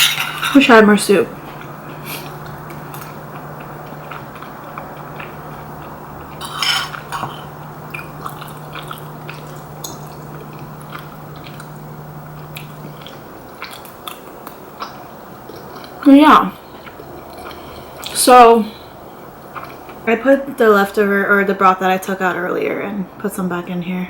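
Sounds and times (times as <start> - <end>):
utensils clattering: 0.0 - 1.3, 6.4 - 7.5
steady low hum: 0.0 - 24.0
quiet chewing: 1.4 - 20.1.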